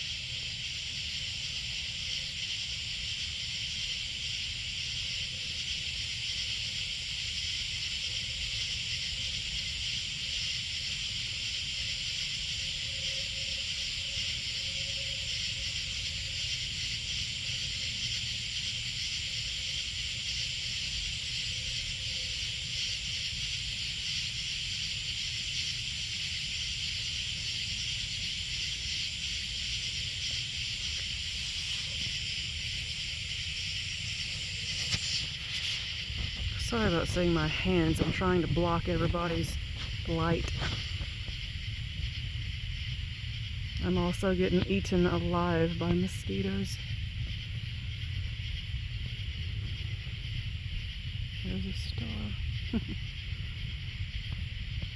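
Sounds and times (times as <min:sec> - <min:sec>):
night insects buzzing: 0:00.0 - 0:54.9
low steady rumble: 0:35.8 - 0:54.9.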